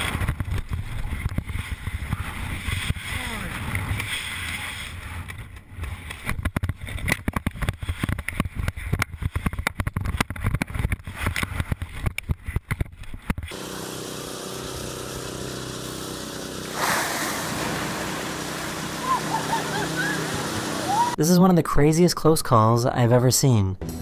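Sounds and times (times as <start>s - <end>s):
steady droning hum: 13.5s - 21.2s.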